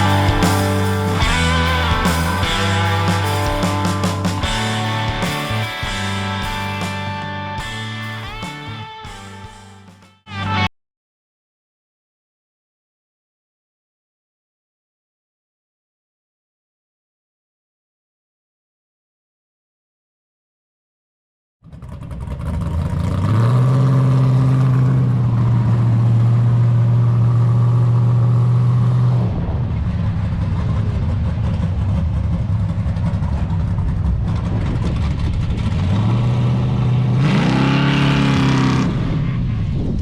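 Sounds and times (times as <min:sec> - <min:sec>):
car engine revving: 0:00.0 - 0:09.9, 0:29.0 - 0:39.6.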